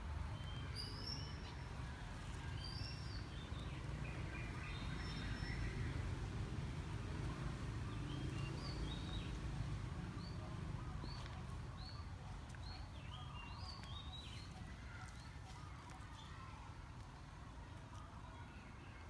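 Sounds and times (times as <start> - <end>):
low outdoor background rumble: 0.0 - 13.0.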